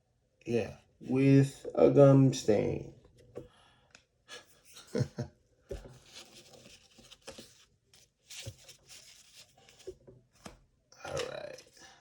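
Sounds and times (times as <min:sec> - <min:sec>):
paper wrapping rustling: 0:05.7 - 0:10.5.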